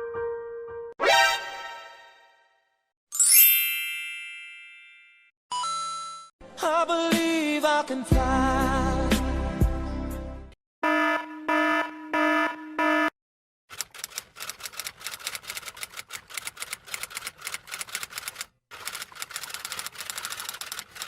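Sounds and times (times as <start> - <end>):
fast typewriter-like clicks: 13.7 - 21.0.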